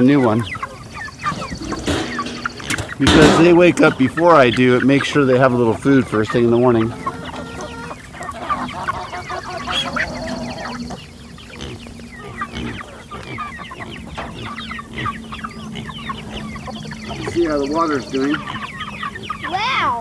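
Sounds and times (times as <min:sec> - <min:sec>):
chicks peeping and clucking: 0:00.0 - 0:20.0.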